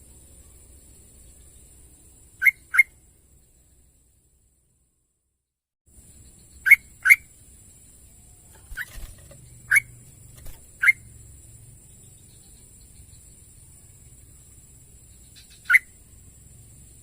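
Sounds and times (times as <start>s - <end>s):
bird giving sharp calls: 8.6s - 11.0s.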